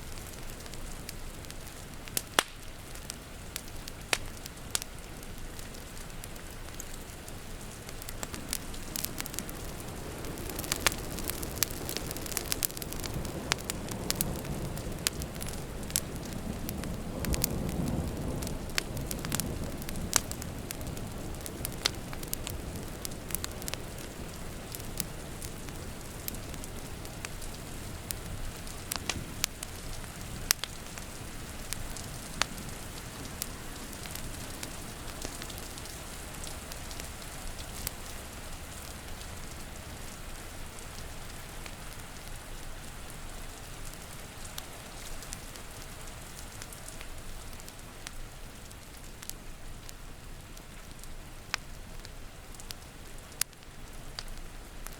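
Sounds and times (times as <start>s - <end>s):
rain hissing: 0.0s - 54.9s
wood fire crackling: 0.0s - 54.9s
distant thunder rumble: 8.8s - 26.2s.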